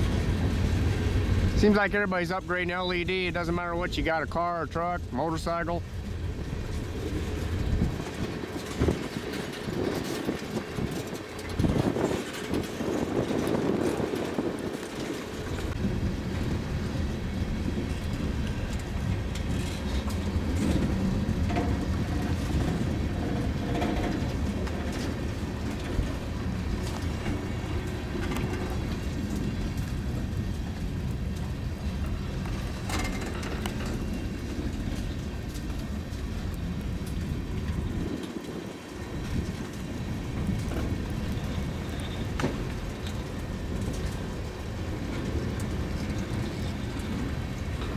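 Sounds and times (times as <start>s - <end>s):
train wheels rumbling on rails: 0.0s - 47.9s
clicks over rail joints: 2.7s - 47.9s.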